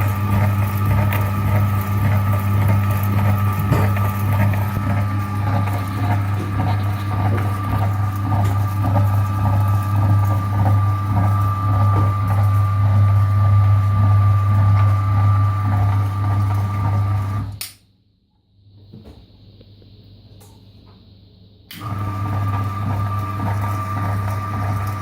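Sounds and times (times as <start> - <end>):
electric meat grinder running: 0.0 - 17.6, 21.7 - 25.0.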